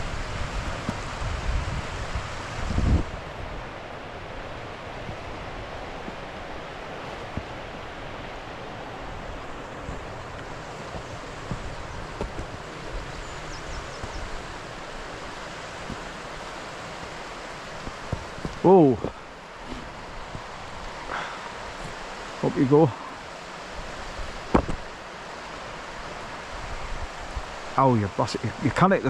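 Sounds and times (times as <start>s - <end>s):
steady rushing noise: 0.0s - 29.0s
footsteps on a rough track: 9.2s - 20.6s.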